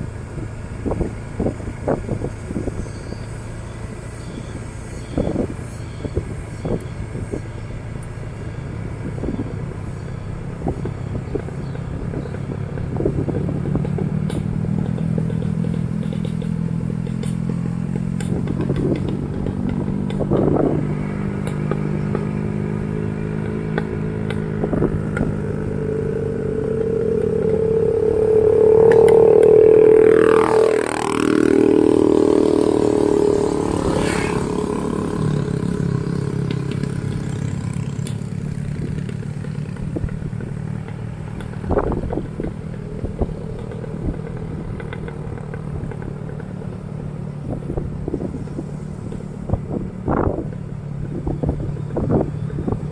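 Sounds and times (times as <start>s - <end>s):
motorcycle engine running: 0.0s - 52.9s
clatter and knocks from bike: 13.8s - 20.4s.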